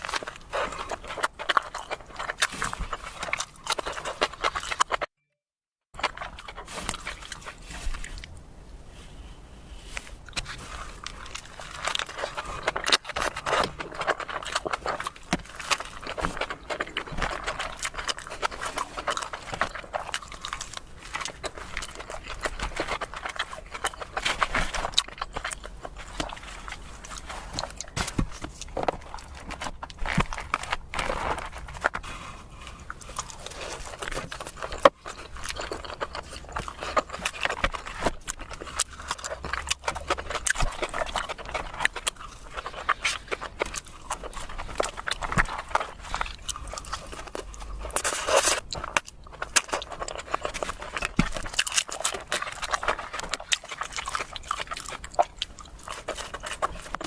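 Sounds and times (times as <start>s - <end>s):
chewing and biting food: 0.0s - 5.2s, 6.0s - 8.5s, 10.0s - 57.0s.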